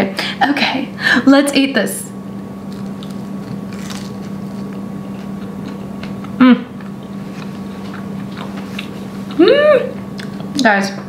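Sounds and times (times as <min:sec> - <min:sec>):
voiced sound from eater: 0:02.2 - 0:11.0
person chewing crispy food: 0:02.6 - 0:10.6.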